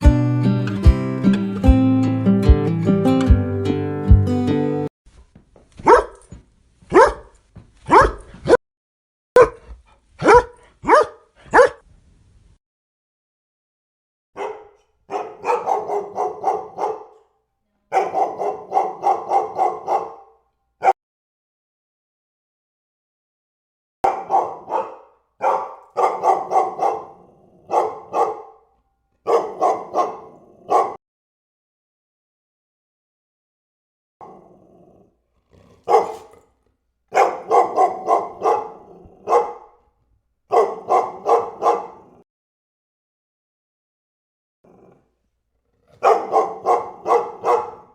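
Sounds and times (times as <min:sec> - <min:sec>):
dog barking: 0:05.8 - 0:06.3, 0:06.9 - 0:08.6, 0:09.4 - 0:11.8, 0:14.4 - 0:21.0, 0:24.0 - 0:31.0, 0:35.6 - 0:39.9, 0:40.5 - 0:42.2, 0:46.0 - 0:47.9.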